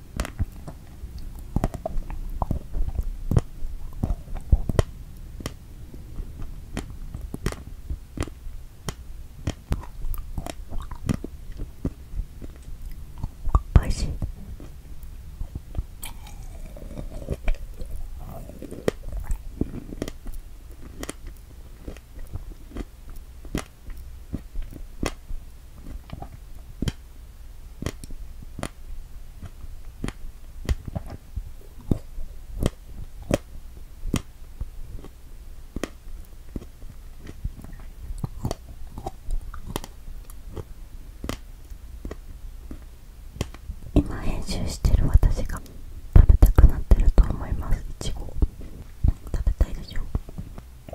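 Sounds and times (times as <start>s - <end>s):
close-miked chewing: 0.1s - 8.4s, 9.4s - 25.2s, 25.8s - 27.0s, 34.1s - 50.9s
wet mouth clicks: 0.2s - 5.6s, 8.2s - 14.8s, 15.5s - 22.9s, 27.8s - 28.8s, 35.8s - 50.9s.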